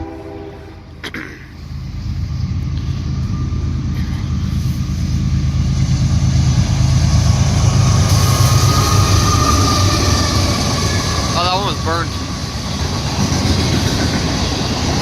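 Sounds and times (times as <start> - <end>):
diesel locomotive engine rumble: 0.0 - 15.0
train wheels rolling: 1.5 - 15.0
faint steady squeal: 2.6 - 4.9, 8.1 - 12.6.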